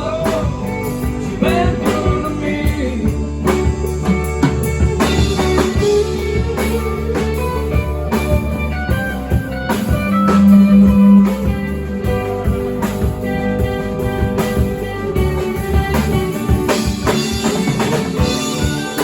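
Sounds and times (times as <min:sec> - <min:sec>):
rock band playing: 0:00.0 - 0:19.0
loud low held note: 0:10.2 - 0:12.0.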